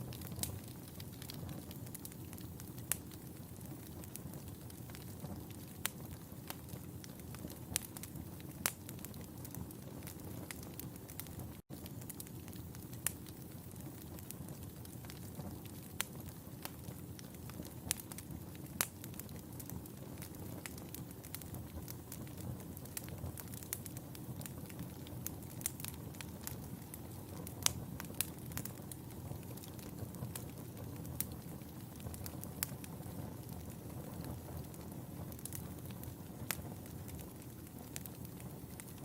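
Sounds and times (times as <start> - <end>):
wood fire crackling and popping: 0.0 - 39.0.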